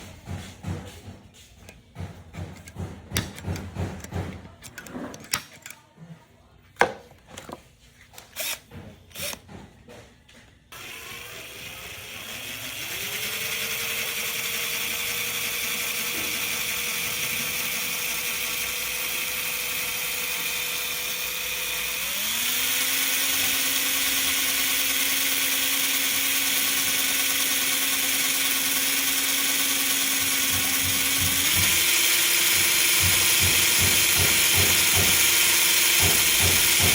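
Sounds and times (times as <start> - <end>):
handling knocks and clicks: 0.0 - 5.9
power tool motor whine: 8.4 - 9.4, 10.7 - 36.9.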